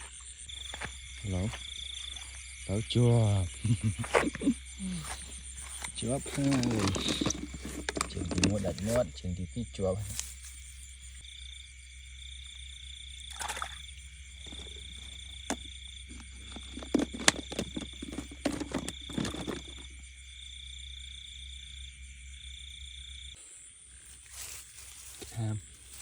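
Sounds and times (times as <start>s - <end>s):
frogs trilling: 0.0s - 26.0s
rustles and clicks: 4.0s - 9.1s, 14.4s - 19.9s, 24.1s - 26.0s.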